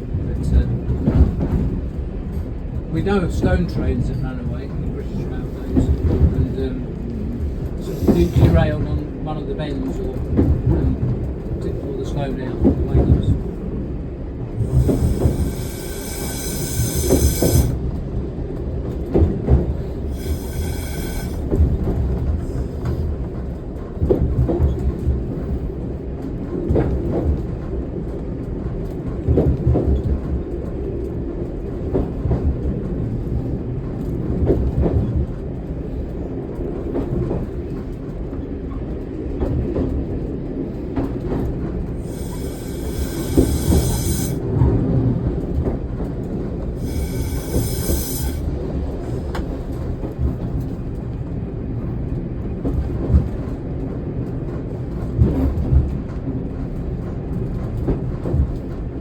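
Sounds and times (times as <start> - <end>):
railcar rumble: 0.0 - 59.0
wheels squealing on curves: 14.6 - 17.8, 20.1 - 21.4, 42.0 - 44.4, 46.8 - 48.4.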